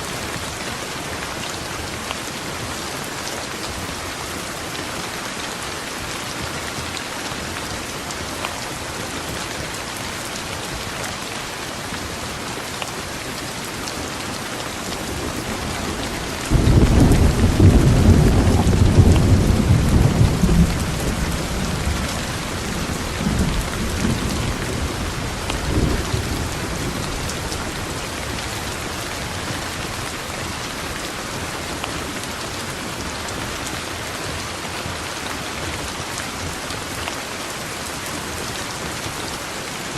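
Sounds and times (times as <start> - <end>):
steady rain hissing: 0.0 - 39.9
thunderclap rumbling: 15.1 - 29.0.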